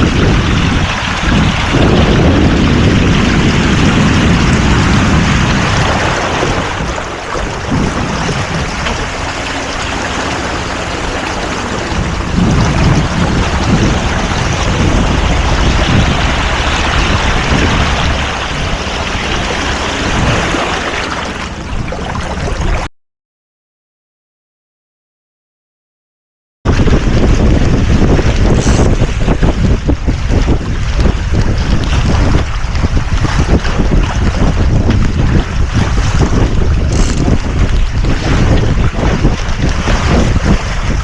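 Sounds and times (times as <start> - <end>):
water rushing along hull: 0.0 - 22.9, 26.7 - 41.0
wind buffeting microphone: 0.0 - 22.9, 26.7 - 41.0.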